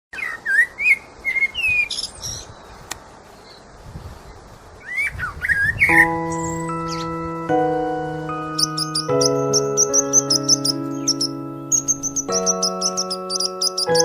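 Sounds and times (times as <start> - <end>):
chime-like music: 5.9 - 14.0
bird whistled chirps: 8.6 - 14.0.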